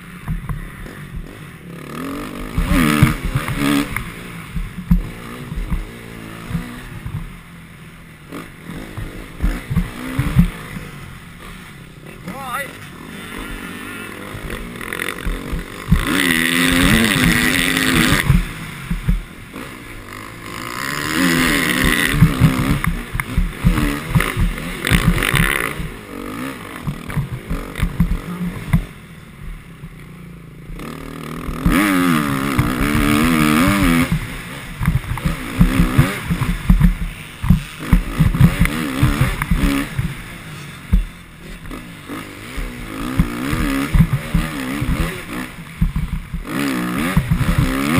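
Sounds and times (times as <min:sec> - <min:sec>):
motocross bike engine revving: 0:00.0 - 0:47.9
short thumps: 0:02.4 - 0:07.5, 0:08.8 - 0:11.0, 0:13.4 - 0:19.5, 0:21.4 - 0:26.0, 0:26.8 - 0:30.0, 0:30.6 - 0:41.9, 0:42.5 - 0:46.5.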